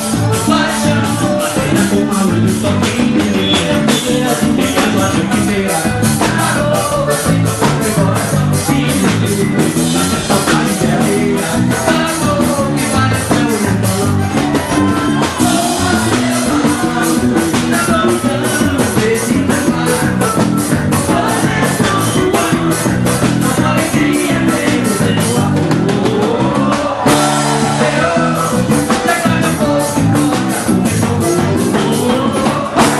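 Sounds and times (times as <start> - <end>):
live band music: 0.0 - 32.9
person singing: 0.0 - 32.9
steady percussion beat: 0.0 - 32.9.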